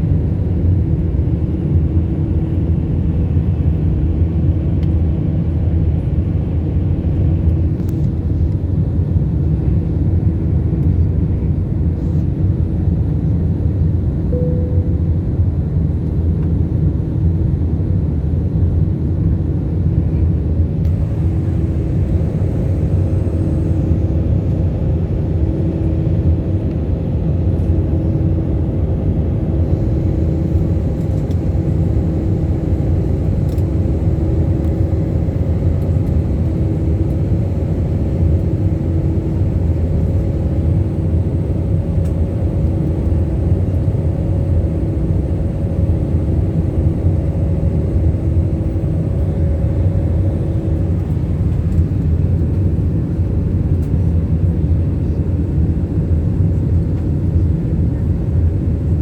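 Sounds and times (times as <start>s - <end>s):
airliner engine and airflow rumble: 0.0s - 59.0s
faint hum: 14.2s - 16.2s, 20.8s - 59.0s.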